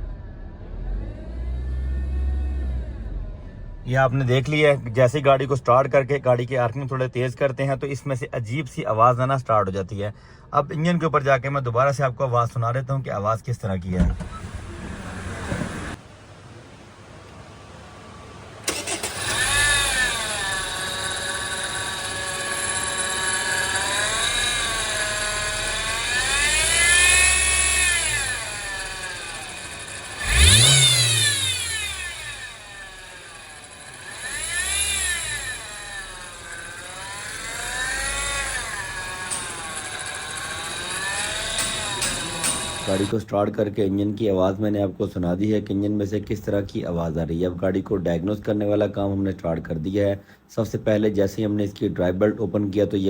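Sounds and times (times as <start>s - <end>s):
car engine revving: 0.0s - 5.0s, 14.0s - 16.0s, 18.0s - 43.1s
car engine starting: 0.0s - 5.8s, 13.8s - 43.2s
belt drive bearing noise: 18.7s - 43.1s.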